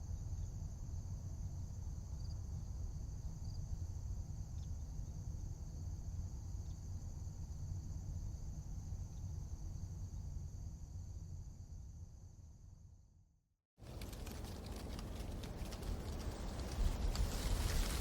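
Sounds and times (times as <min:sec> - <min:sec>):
low wind rumble: 0:13.8 - 0:18.0.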